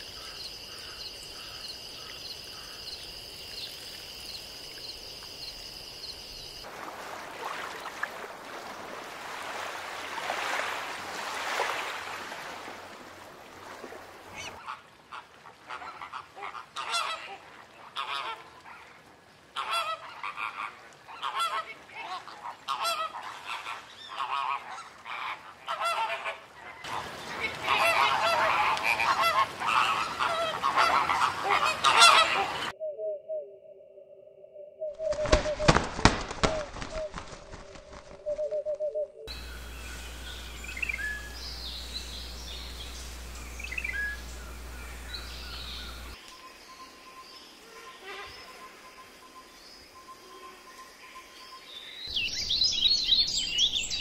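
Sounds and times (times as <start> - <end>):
birds harsh calls: 26.9 - 32.8, 39.3 - 46.2.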